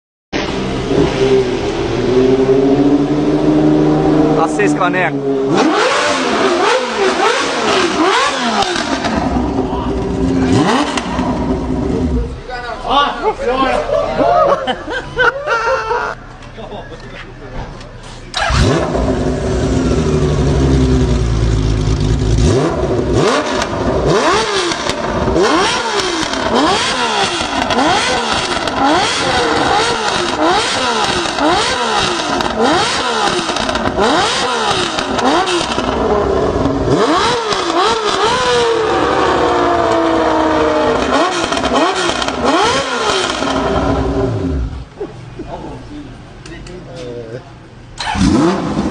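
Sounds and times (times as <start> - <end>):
motorcycle engine revving: 0.4 - 12.5, 18.3 - 44.9, 48.0 - 48.9.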